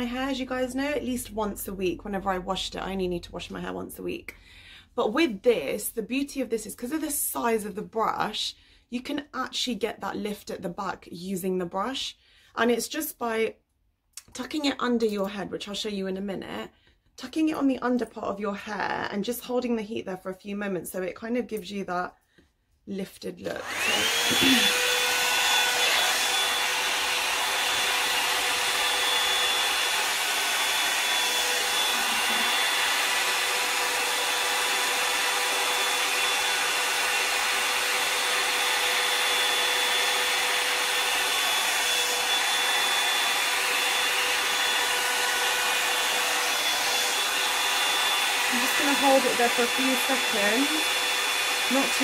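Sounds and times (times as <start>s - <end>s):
hair dryer motor whine: 23.4s - 52.0s
rush of hot air: 23.8s - 37.8s.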